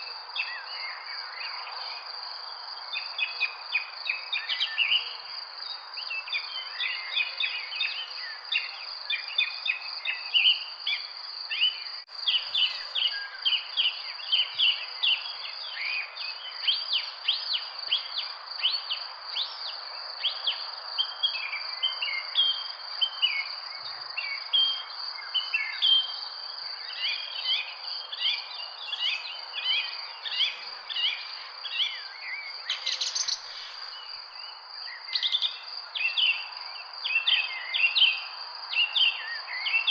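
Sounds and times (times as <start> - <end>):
birds chirping and calling: 12.1 - 13.6, 28.2 - 34.1
high insect trill: 12.1 - 15.0
background hiss: 12.1 - 22.2, 24.2 - 38.8.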